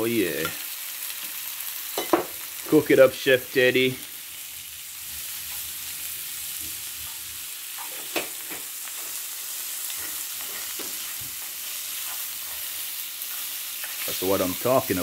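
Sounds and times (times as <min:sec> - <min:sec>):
food sizzling in frying pan: 0:00.0 - 0:15.0
wooden spoon scraping and tapping: 0:10.0 - 0:14.1.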